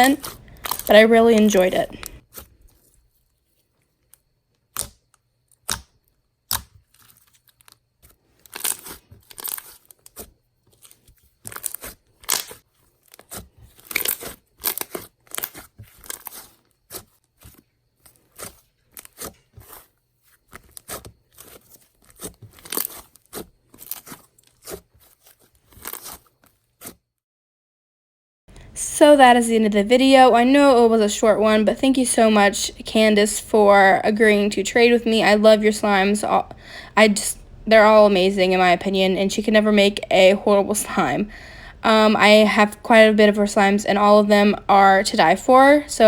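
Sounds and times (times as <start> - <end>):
slime clicking and popping: 5.6 - 5.9.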